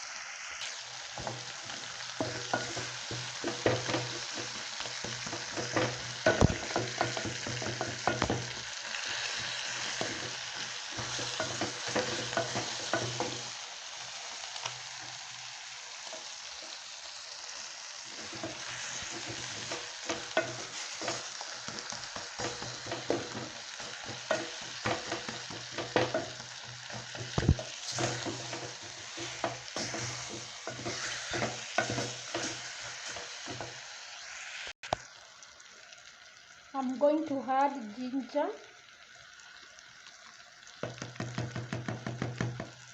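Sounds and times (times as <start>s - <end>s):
chicken and onions sizzling in pan: 0.0s - 42.9s
spoon scraping pan: 1.1s - 13.6s, 18.1s - 34.3s.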